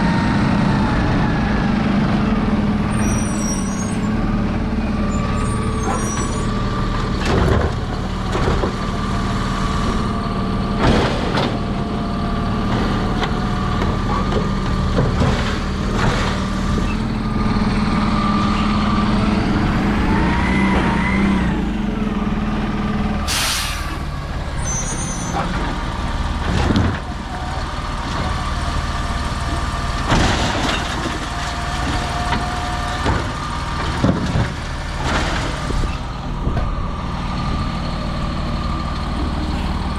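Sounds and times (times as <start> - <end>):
truck engine running: 0.0 - 39.9
air brake hiss: 23.3 - 24.1.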